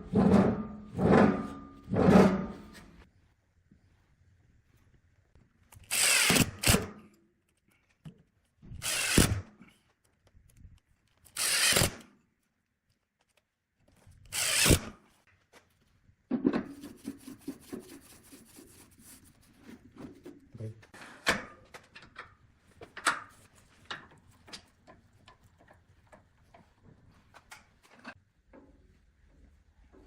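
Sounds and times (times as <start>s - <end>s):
power tool bursts: 5.9s - 6.9s, 8.8s - 9.4s, 11.4s - 12.0s, 14.3s - 14.9s.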